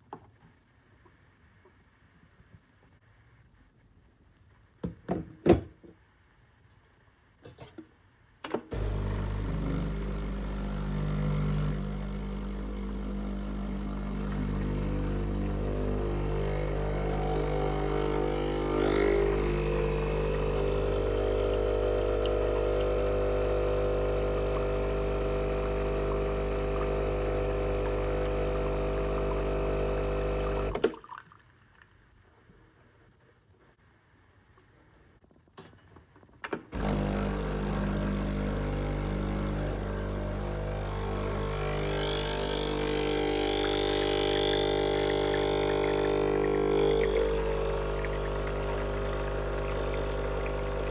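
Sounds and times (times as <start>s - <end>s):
espresso machine pump humming: 8.7s - 30.9s, 36.8s - 50.9s.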